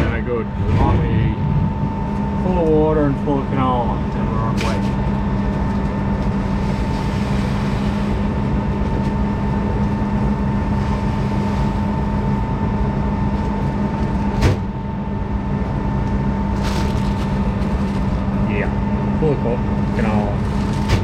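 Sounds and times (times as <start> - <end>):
farm machine engine droning: 0.0 - 14.2.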